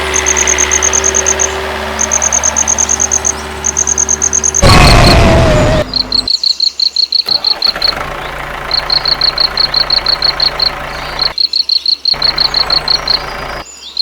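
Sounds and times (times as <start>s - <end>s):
rapid high-pitched chirping: 0.0s - 4.6s, 8.7s - 14.0s.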